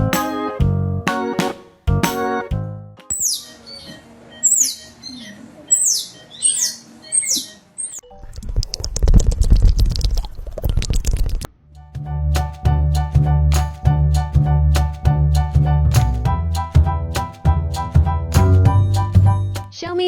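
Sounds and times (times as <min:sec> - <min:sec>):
small animal squeaks: 0:03.1 - 0:08.0.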